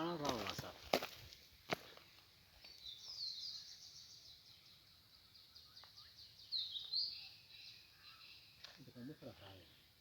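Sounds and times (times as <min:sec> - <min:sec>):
bird singing high chirps: 0:02.6 - 0:10.0.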